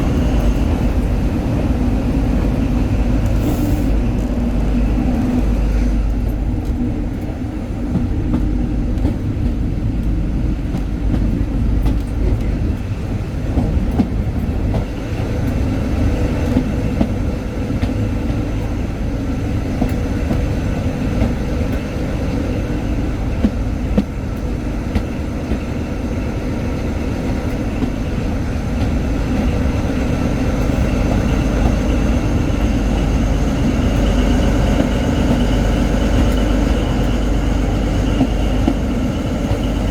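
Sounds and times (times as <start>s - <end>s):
diesel engine: 0.0s - 8.7s
train rumbling on rails: 0.0s - 39.9s.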